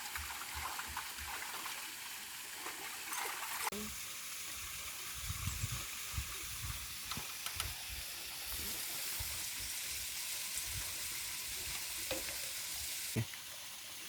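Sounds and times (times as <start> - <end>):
food sizzling in a pan: 8.2 - 14.0.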